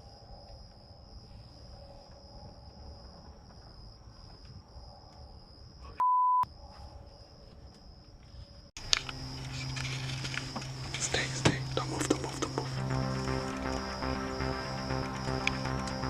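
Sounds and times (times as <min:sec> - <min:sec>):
faint outdoor rustle: 0:00.0 - 0:05.9, 0:06.6 - 0:12.3
censor bleep: 0:06.0 - 0:06.5
high insect chirring: 0:08.8 - 0:16.0.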